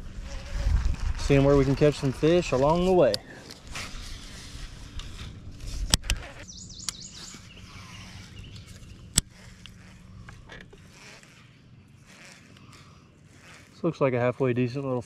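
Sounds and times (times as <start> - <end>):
low outdoor background noise: 0.0 - 15.0
bird chirping: 6.1 - 10.0.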